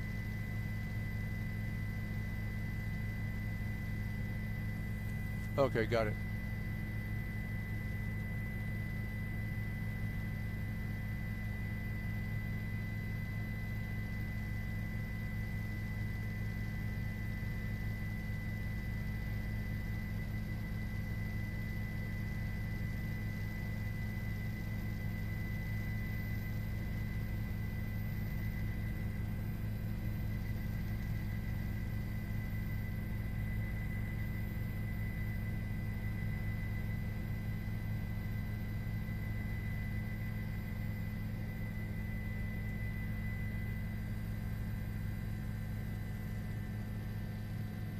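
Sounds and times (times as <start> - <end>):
helicopter cabin drone: 0.0 - 47.9
high whine: 4.8 - 6.2.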